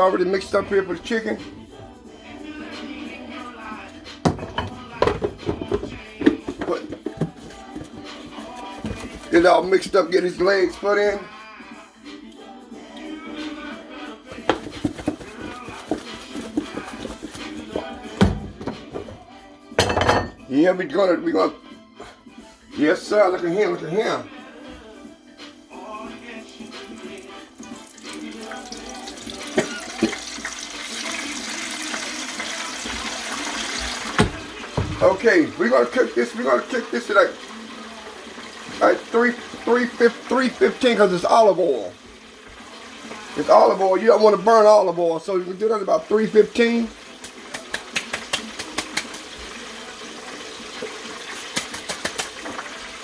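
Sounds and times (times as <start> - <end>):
chicken sizzling in oil: 25.8 - 53.0.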